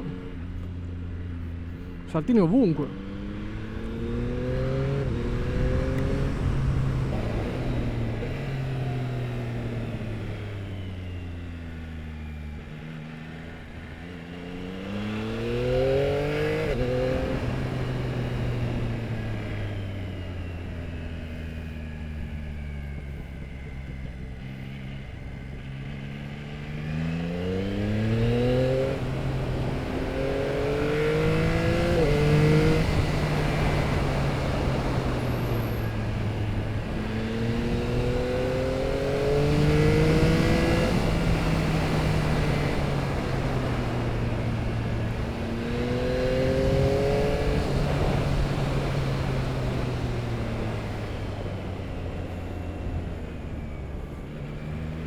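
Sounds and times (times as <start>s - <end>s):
motorcycle engine revving: 2.8s - 55.0s.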